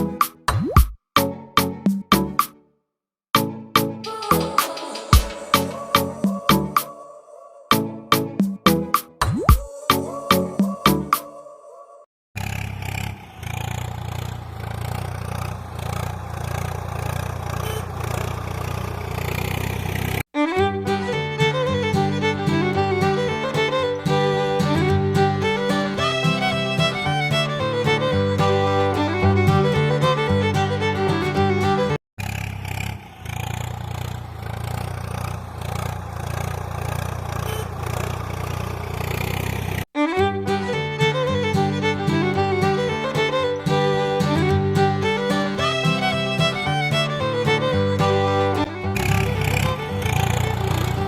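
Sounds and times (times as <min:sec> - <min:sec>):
engine running low rumble: 0:13.1 - 0:20.2, 0:48.5 - 0:51.0.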